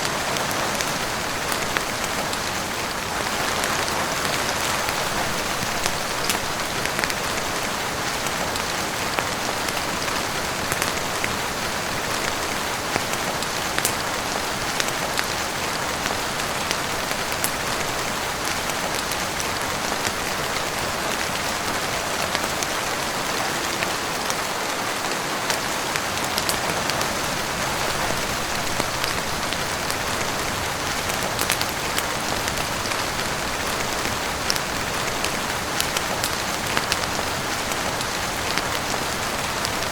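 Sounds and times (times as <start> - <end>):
heavy rain on roof and windows: 0.0 - 39.9
sharp ticks and pops: 13.8 - 14.1, 31.1 - 32.1.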